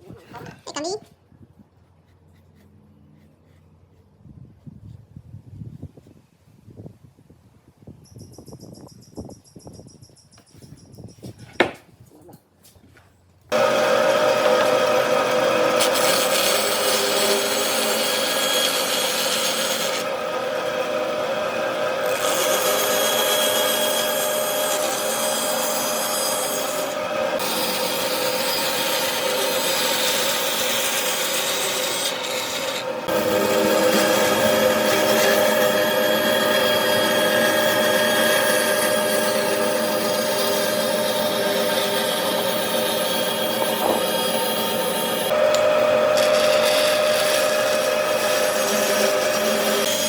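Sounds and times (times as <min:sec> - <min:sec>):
power tool rasping on wood: 0:13.5 - 0:45.4, 0:46.1 - 0:50.0.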